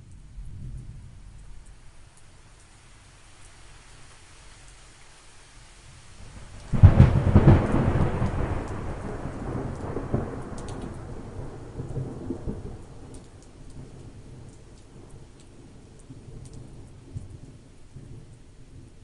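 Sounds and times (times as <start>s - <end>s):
light rain: 0.0s - 19.0s
thunder crack and rumble: 6.4s - 18.9s.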